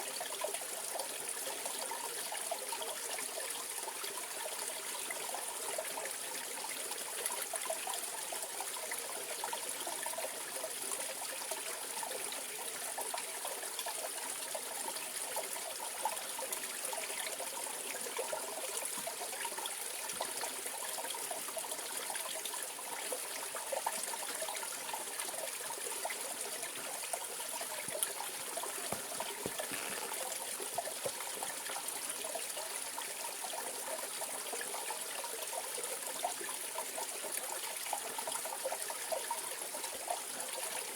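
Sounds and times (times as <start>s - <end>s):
stream flowing: 13.0s - 40.9s.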